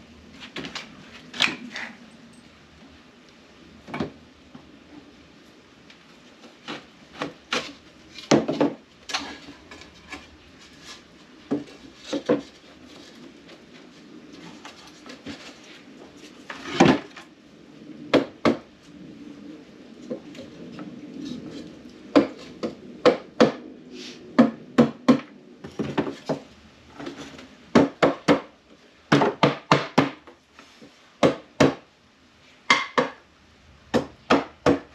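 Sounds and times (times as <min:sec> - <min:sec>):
wood scraping and rubbing: 0:06.2 - 0:17.3.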